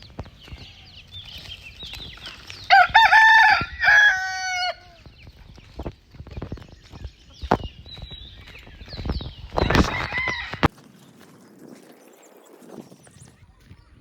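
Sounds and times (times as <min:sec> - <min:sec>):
small birds chirping: 0:00.0 - 0:14.0
rooster crowing: 0:02.7 - 0:05.0, 0:09.6 - 0:10.7.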